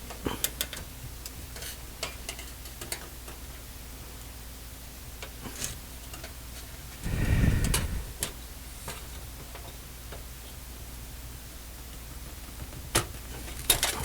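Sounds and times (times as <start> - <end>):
steady low hum: 7.0 - 8.8.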